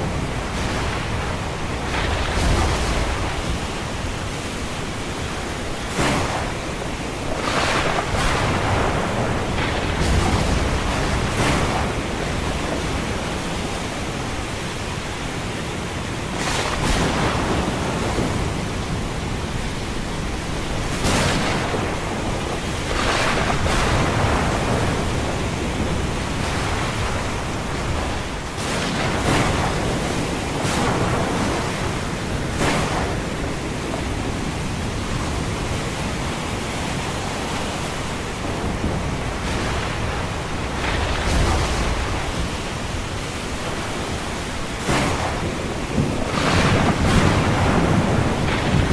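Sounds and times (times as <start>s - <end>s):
low thunder rumble: 0.0s - 4.3s, 7.4s - 13.4s, 38.4s - 48.9s
ocean waves: 0.0s - 48.9s
rain: 0.0s - 48.9s.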